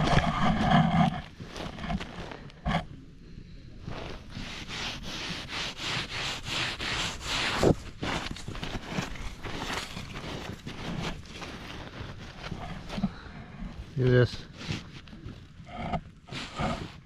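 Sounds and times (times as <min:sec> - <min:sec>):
footsteps crunching on icy snow: 0:06.9 - 0:13.2.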